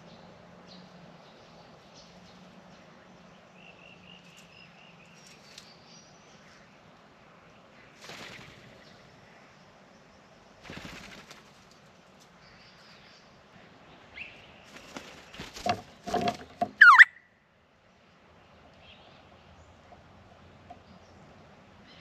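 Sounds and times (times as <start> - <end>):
birds scuffling: 4.2 - 5.8, 14.6 - 17.1
bird wings flapping: 8.0 - 8.8, 10.6 - 11.9, 14.7 - 16.6
sharp bird call: 16.8 - 17.3.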